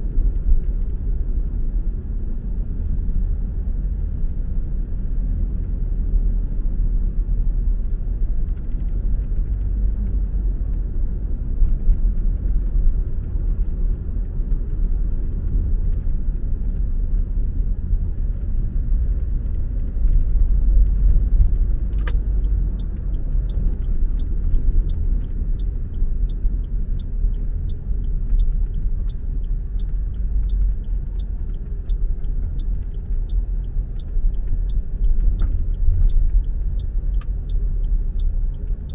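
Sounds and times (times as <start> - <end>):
car driving rumble: 0.0 - 38.9
turn signal ticking: 0.0 - 38.9
click: 21.4 - 38.9.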